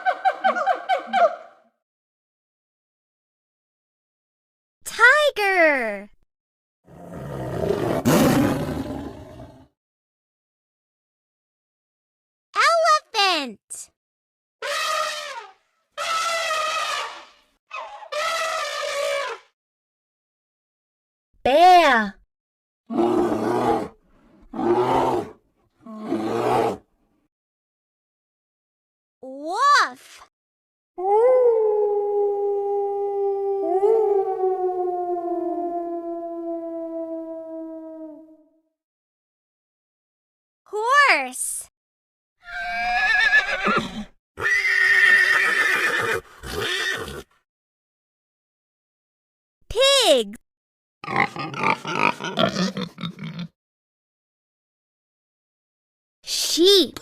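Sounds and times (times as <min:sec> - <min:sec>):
bear growling: 0:06.9 - 0:09.7, 0:22.9 - 0:26.8, 0:51.0 - 0:53.6
horse neighing: 0:42.4 - 0:47.3.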